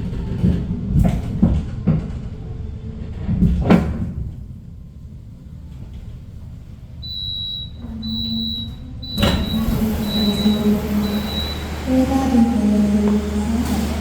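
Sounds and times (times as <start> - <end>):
train carriage rumble: 0.0 - 14.0
high electronic tone: 8.1 - 12.8.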